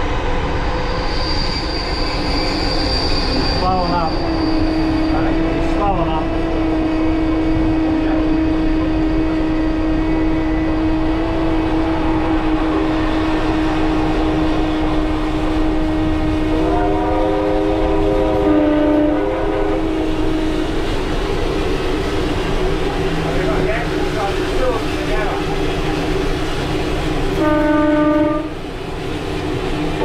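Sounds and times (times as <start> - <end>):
trains rumbling on tracks: 0.0 - 30.0
train chime whistle: 16.5 - 19.8, 27.4 - 28.6.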